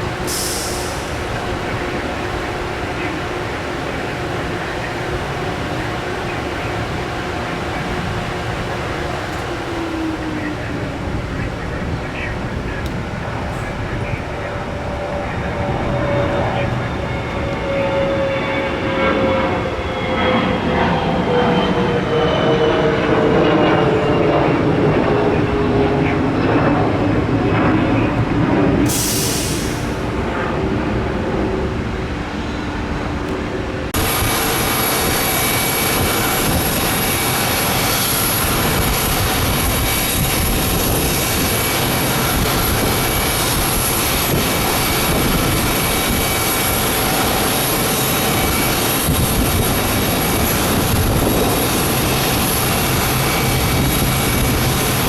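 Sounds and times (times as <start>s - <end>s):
distant airport rumble: 0.0s - 55.0s
jet engine whine: 0.0s - 55.0s
brief hiss: 0.3s - 1.2s, 28.9s - 30.0s.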